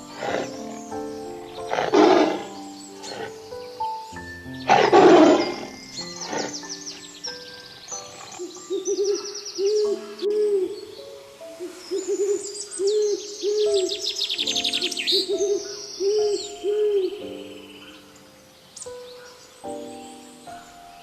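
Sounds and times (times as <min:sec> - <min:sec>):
low hooting calls: 0:00.0 - 0:03.7, 0:04.7 - 0:07.1
bird chirps and trills: 0:00.0 - 0:21.0.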